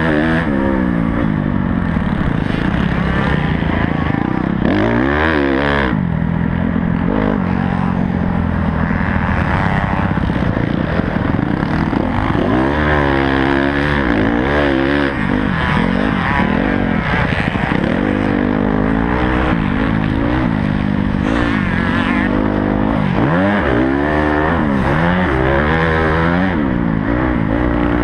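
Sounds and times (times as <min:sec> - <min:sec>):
motocross bike engine revving: 0:00.0 - 0:28.0
wind rush on microphone: 0:07.6 - 0:13.1.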